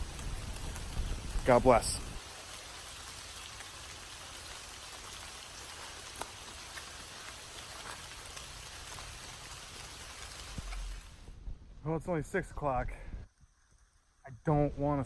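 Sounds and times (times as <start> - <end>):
steady rain: 0.0 - 11.4.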